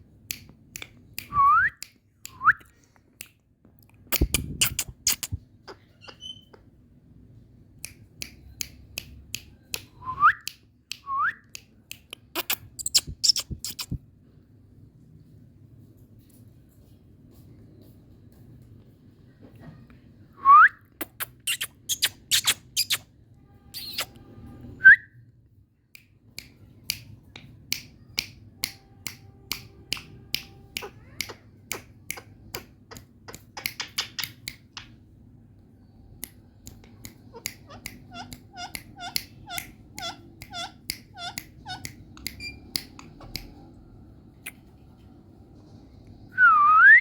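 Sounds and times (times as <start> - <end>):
parrot clicking: 26.4 - 35.0, 36.2 - 43.6.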